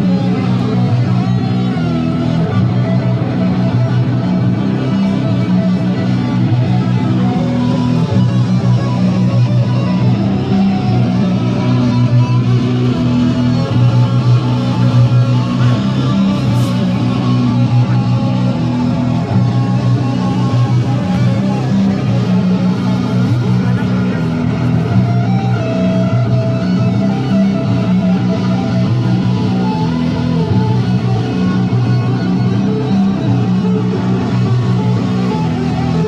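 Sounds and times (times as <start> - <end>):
electric guitar low notes: 0.0 - 36.0.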